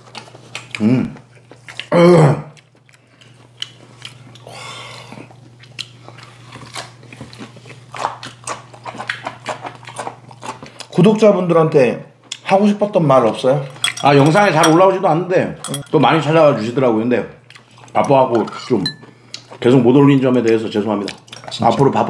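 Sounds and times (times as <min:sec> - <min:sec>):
chewing and biting food: 0:00.0 - 0:11.3, 0:12.2 - 0:12.5, 0:17.4 - 0:22.0
steady low hum: 0:00.7 - 0:22.0
chopsticks clicking on dishes: 0:13.6 - 0:14.9, 0:15.6 - 0:16.1.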